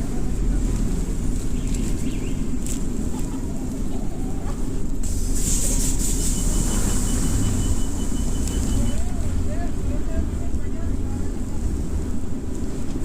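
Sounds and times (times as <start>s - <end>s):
wind buffeting microphone: 0.0s - 13.0s
bright hiss: 5.0s - 9.0s.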